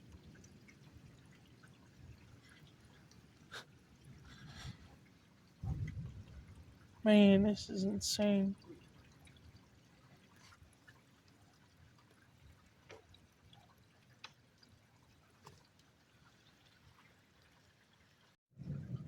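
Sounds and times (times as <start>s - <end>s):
faint rain: 0.0s - 19.0s
single raindrops ticking: 12.8s - 14.8s.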